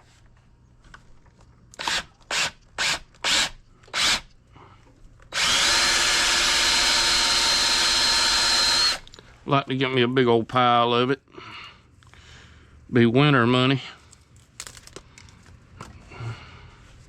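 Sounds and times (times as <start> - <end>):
power tool motor whining: 5.3 - 9.1.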